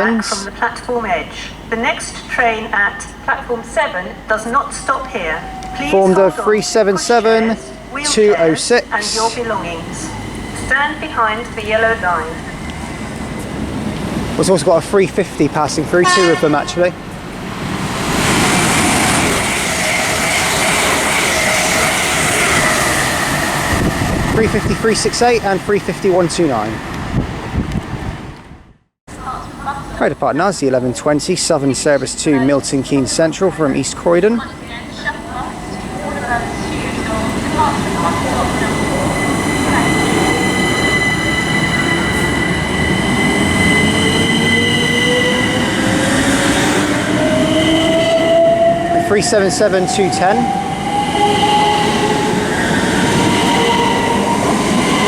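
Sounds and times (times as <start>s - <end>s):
steady high-pitched whines: 0.0s - 13.4s
train passing with loud rush: 0.0s - 55.0s.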